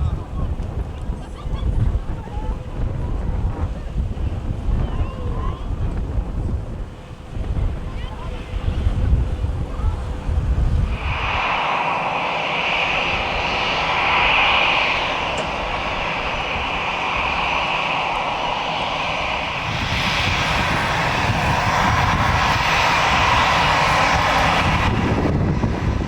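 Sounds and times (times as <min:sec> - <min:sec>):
jet engine deep rumble: 0:00.0 - 0:26.0
jet engine high whine: 0:06.8 - 0:26.0.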